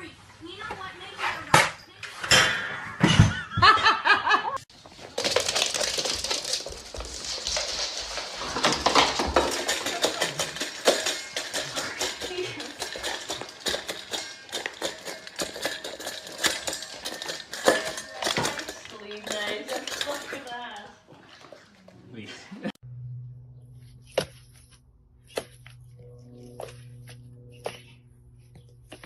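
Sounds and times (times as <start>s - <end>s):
hard objects clattering: 4.7s - 21.8s.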